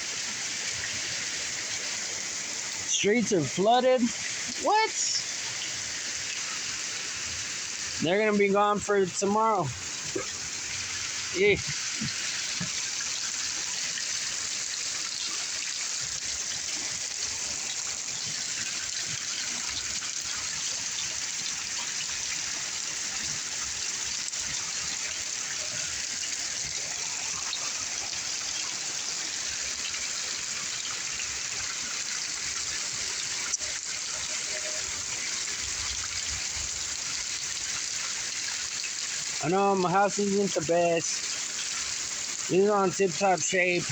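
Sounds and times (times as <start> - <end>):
heavy rain pouring: 2.8 - 5.6, 7.8 - 21.1, 30.5 - 41.2.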